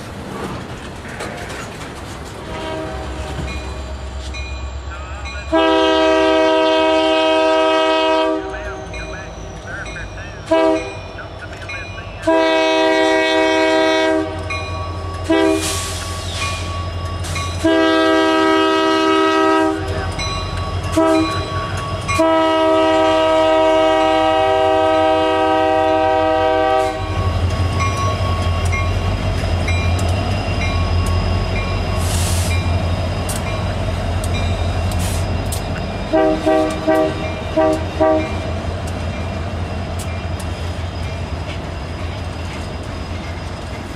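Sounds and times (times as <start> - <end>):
train wheel clatter: 0.0 - 4.6, 27.1 - 43.9
train rumbling past: 0.0 - 43.9
locomotive air horn blasts: 2.5 - 3.5, 5.5 - 8.9, 10.5 - 10.9, 12.2 - 14.5, 15.3 - 16.0, 17.6 - 20.0, 20.9 - 21.5, 22.2 - 27.2, 36.1 - 38.5.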